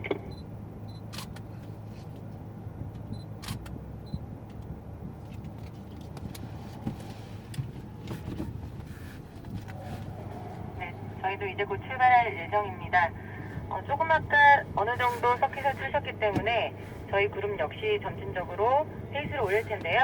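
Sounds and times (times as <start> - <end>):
faint high beeps: 0.3 - 1.0.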